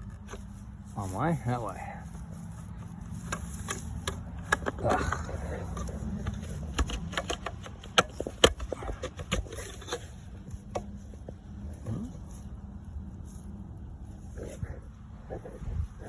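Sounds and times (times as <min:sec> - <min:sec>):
plastic plugs clicking and knocking: 0:03.2 - 0:11.4.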